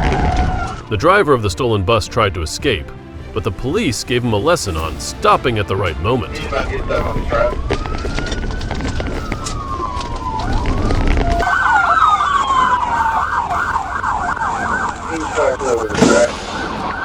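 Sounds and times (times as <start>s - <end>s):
police siren yelping: 0.0s - 0.9s, 4.8s - 17.0s
police siren wailing: 0.0s - 1.0s, 3.4s - 17.0s
low vehicle rumble: 2.8s - 17.0s.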